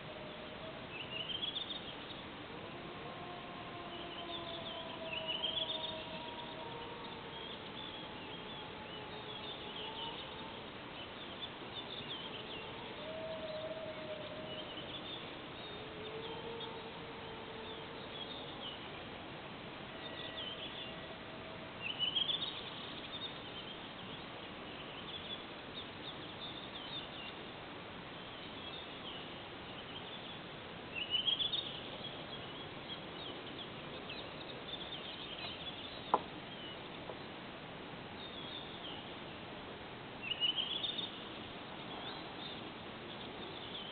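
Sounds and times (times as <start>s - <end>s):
faint drawn-out howls: 0.0s - 25.6s
birds chirping: 28.2s - 37.4s.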